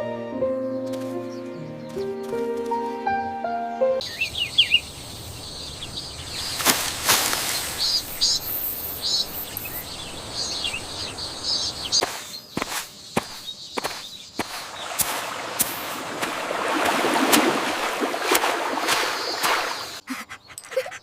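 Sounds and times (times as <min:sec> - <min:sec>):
piano music: 0:00.0 - 0:04.0
birds chirping: 0:00.4 - 0:21.0
steady outdoor hiss: 0:02.7 - 0:21.0.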